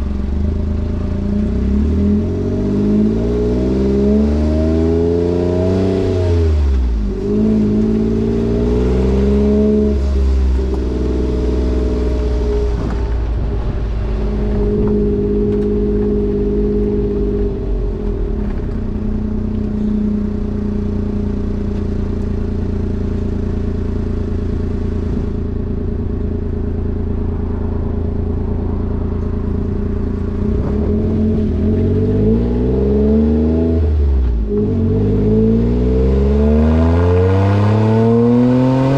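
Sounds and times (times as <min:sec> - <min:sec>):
small engine exhaust note: 0:07.0 - 0:33.4.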